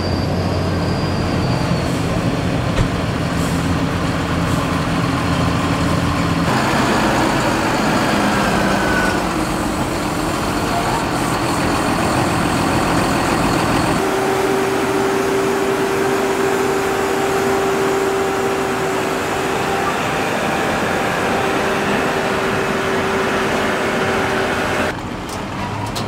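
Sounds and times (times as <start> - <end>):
heavy machinery engines running: 0.0 - 26.0
steady whine: 13.0 - 24.9.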